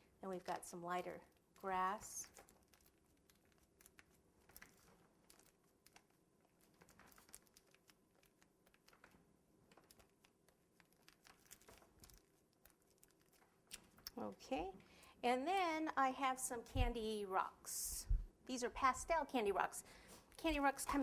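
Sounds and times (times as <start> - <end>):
piping bag crinkling and clicks: 0.4 - 14.5.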